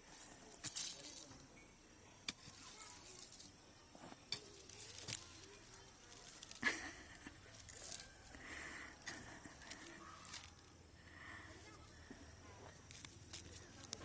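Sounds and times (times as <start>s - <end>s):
hands digging in soil: 2.3s - 10.7s.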